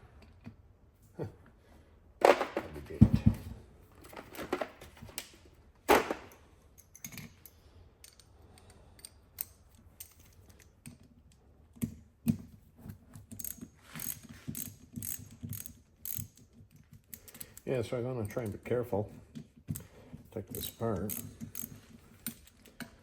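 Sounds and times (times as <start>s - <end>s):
ratchet wrench clicking: 13.3s - 17.6s, 20.5s - 22.6s.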